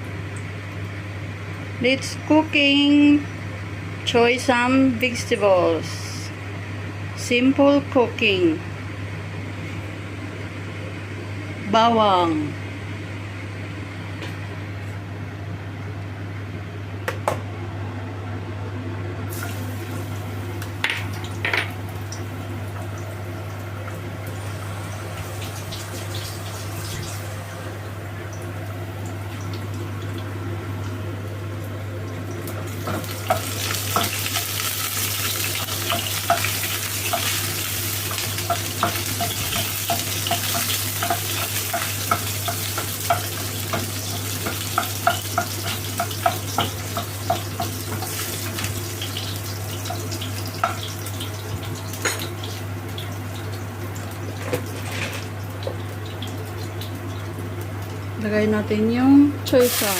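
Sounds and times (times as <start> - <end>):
oil sizzling in pan: 19.3 - 27.6, 28.4 - 58.1, 59.5 - 59.9.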